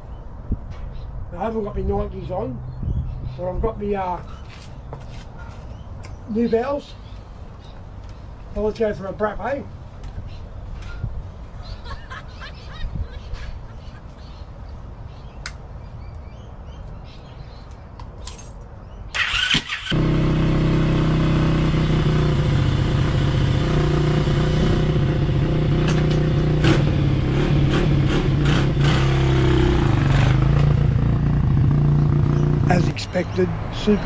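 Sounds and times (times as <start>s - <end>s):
motorcycle engine starting: 19.2s - 23.7s.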